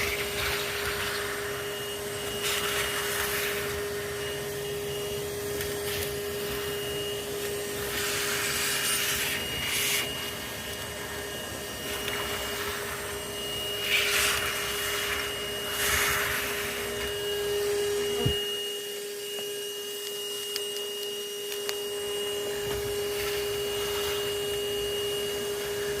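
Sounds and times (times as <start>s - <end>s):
vacuum whining: 0.0s - 26.0s.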